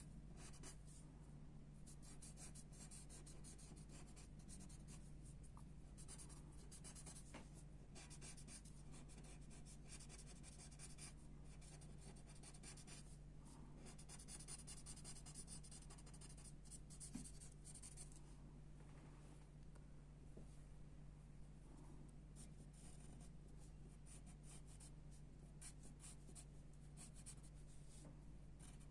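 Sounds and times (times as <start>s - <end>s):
low steady hum: 0.0s - 28.9s
pencil scratching on paper: 0.4s - 1.0s, 1.9s - 5.1s, 6.0s - 7.3s, 8.0s - 13.1s, 13.8s - 18.0s, 24.1s - 24.9s, 25.6s - 27.6s, 28.6s - 28.9s.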